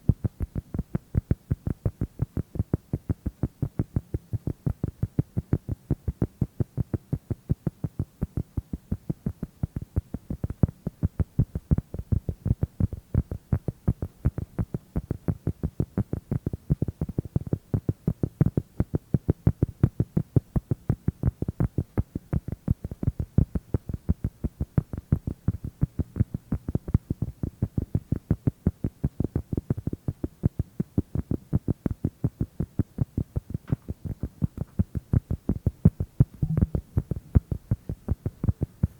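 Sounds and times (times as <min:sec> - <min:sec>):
dull low tapping: 0:33.6 - 0:38.3.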